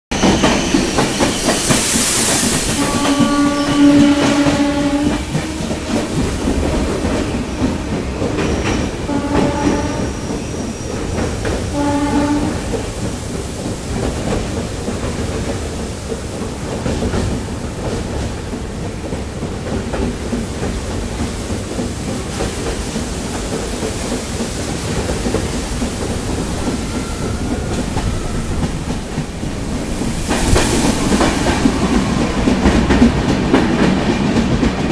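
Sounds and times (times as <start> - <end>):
train rumble and wheel clatter: 0.1 - 34.9
brief hiss: 0.5 - 3.8
train horn blasts: 2.7 - 6.6, 9.1 - 10.4, 11.7 - 12.8.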